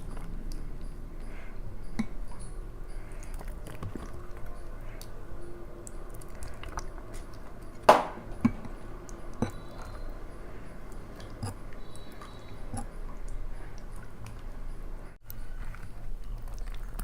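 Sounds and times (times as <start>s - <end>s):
person chewing food: 0.0s - 5.2s, 5.8s - 10.1s, 10.7s - 17.0s
sharp crunches: 7.9s - 8.3s.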